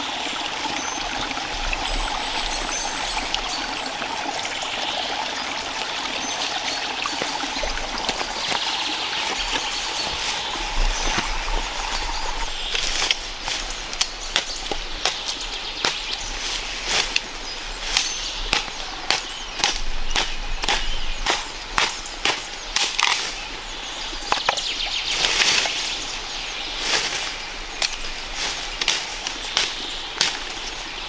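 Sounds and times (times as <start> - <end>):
steady hiss: 7.6 - 31.0.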